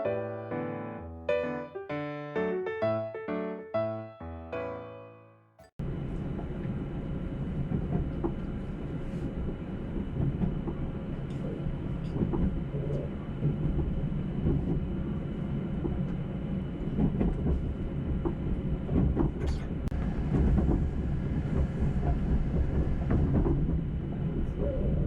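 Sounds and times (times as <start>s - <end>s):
train wheels rumbling on rail: 5.8s - 25.0s.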